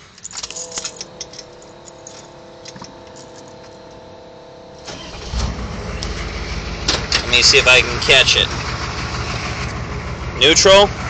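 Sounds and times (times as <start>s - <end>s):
keys jangling in ignition: 0.0s - 4.0s
diesel engine starting: 0.0s - 11.0s
steady whine: 0.0s - 11.0s.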